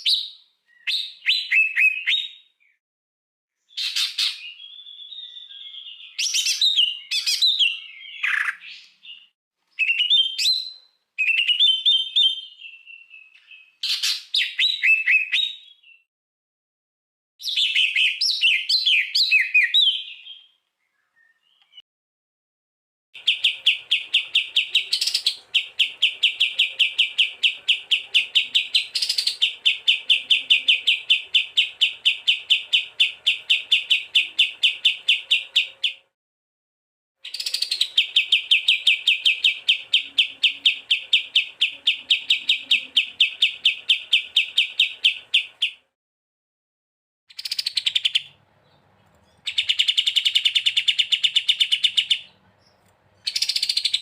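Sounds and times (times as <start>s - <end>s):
songbird sharp chirps: 0.0s - 2.8s, 3.6s - 16.1s, 17.4s - 21.8s, 23.2s - 36.2s, 37.2s - 45.9s, 47.3s - 54.0s.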